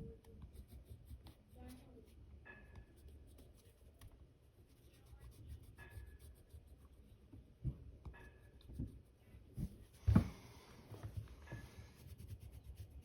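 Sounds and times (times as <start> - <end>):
pencil scratching on paper: 0.2 - 7.2, 11.1 - 13.0.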